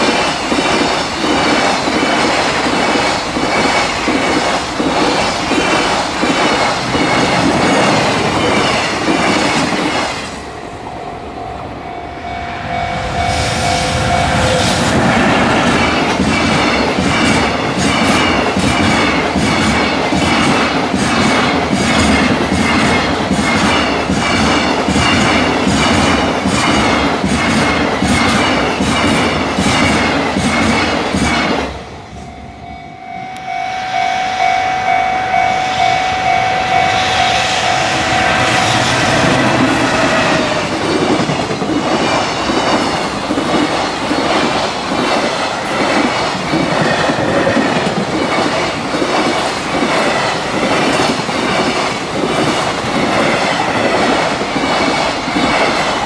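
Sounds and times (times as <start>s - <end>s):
train wheels clacking on rail joints: 0.0s - 10.4s, 14.0s - 32.3s, 37.0s - 56.0s
steady high tone: 6.9s - 17.6s, 31.8s - 41.6s.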